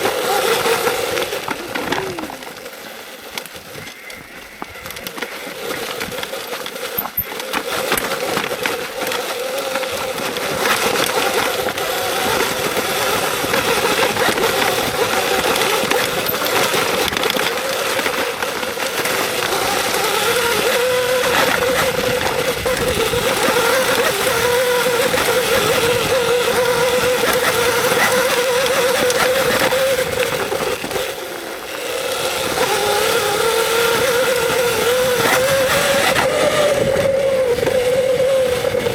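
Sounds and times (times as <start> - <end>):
electric motor whine: 0.0 - 38.9.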